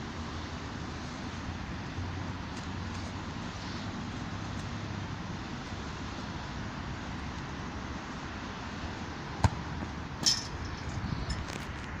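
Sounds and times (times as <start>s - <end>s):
football kicked hard: 9.4s - 10.0s.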